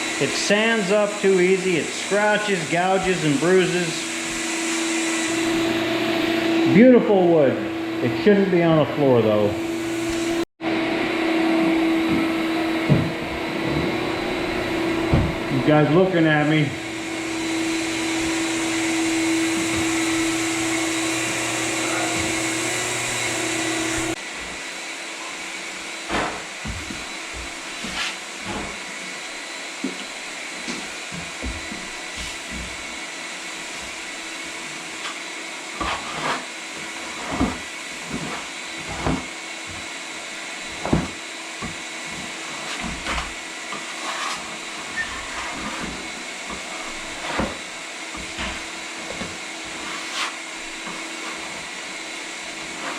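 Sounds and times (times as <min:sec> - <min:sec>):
floor sanding machine humming: 0:00.0 - 0:52.9.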